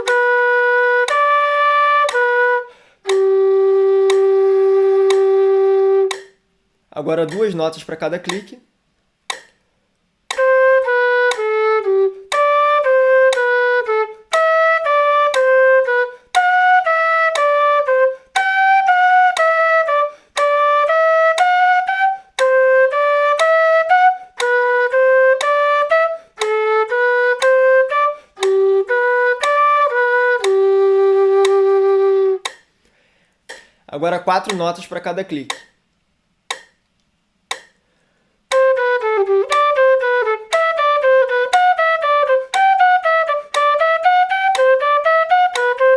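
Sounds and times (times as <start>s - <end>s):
metronome clicks: 0.0s - 0.4s, 1.0s - 1.4s, 2.0s - 2.4s, 3.0s - 3.4s, 4.0s - 4.4s, 5.0s - 5.4s, 6.0s - 8.6s, 9.2s - 14.6s, 15.2s - 16.6s, 17.3s - 17.6s, 18.2s - 19.6s, 20.2s - 21.7s, 22.3s - 30.7s, 31.3s - 31.8s, 32.4s - 45.9s
flute playing short notes: 0.0s - 6.4s, 10.3s - 32.6s, 38.5s - 45.9s
breaths: 2.7s - 3.0s, 32.8s - 33.9s, 37.8s - 38.4s.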